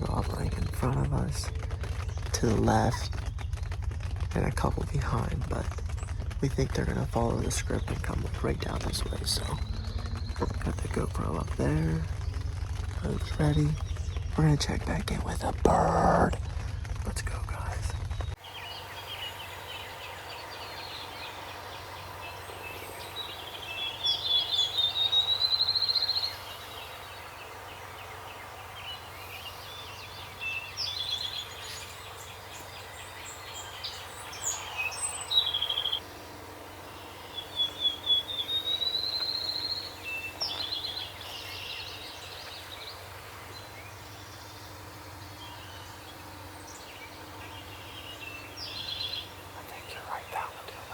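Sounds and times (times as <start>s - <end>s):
bird chirps and calls: 7.0s - 12.4s, 17.6s - 36.1s, 36.8s - 50.9s
songbird trilled song: 7.0s - 16.3s, 17.6s - 50.9s.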